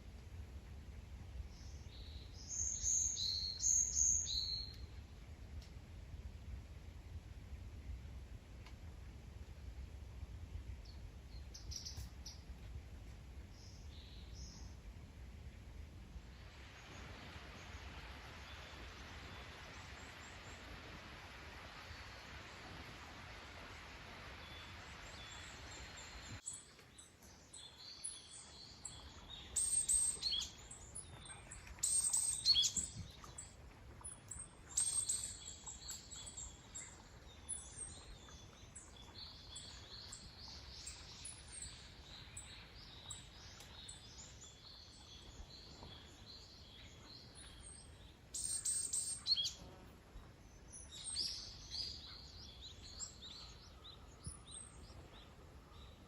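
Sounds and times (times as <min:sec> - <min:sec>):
songbirds singing and calling: 0:01.5 - 0:04.9, 0:24.4 - 0:56.0.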